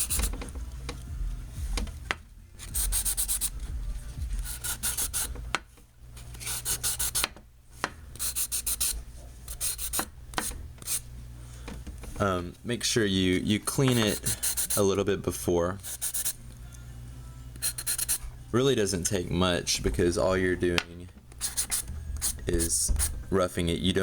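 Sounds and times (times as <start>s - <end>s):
sandpaper scratching by hand: 0.0s - 0.4s, 2.6s - 3.6s, 4.3s - 5.4s, 6.4s - 7.3s, 8.2s - 10.1s, 13.9s - 14.8s, 15.8s - 16.4s, 17.6s - 18.2s, 21.4s - 23.1s.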